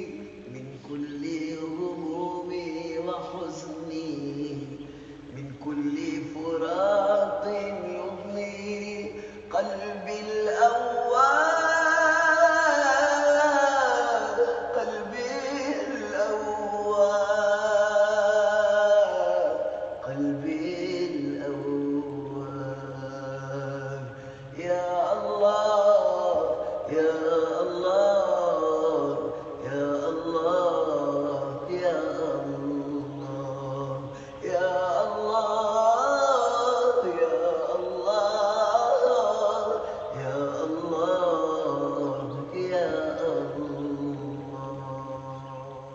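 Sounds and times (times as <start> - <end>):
men chanting melodically: 0.0 - 45.9.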